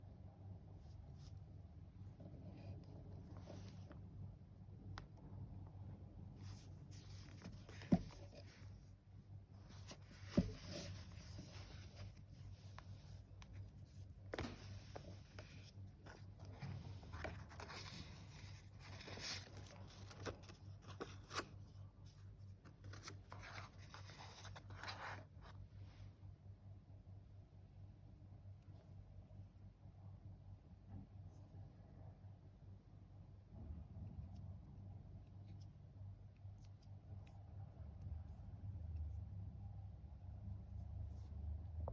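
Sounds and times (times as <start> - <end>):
low steady hum: 0.0 - 41.9
paper pages rustling: 6.4 - 8.8, 9.6 - 21.8, 22.6 - 25.5.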